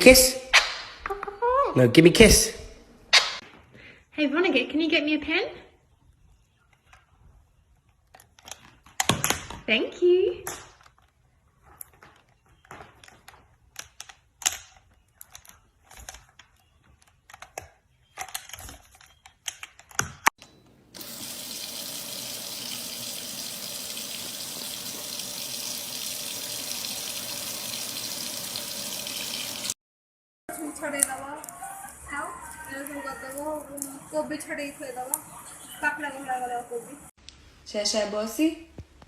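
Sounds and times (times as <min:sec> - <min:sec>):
water running from a tap: 0:21.0 - 0:29.8.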